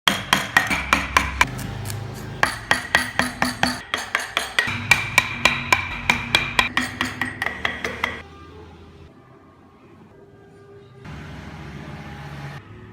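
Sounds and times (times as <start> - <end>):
rapid ringing knocks: 0.1 - 1.5, 2.4 - 8.2.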